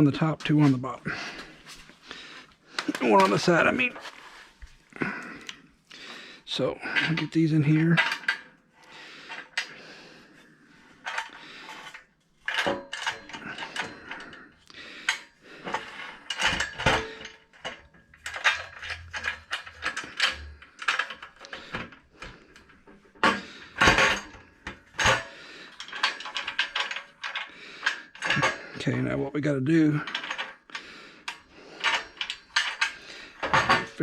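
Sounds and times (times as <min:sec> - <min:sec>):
small metal parts clinking: 0:11.0 - 0:14.5, 0:15.1 - 0:28.8, 0:30.0 - 0:34.0.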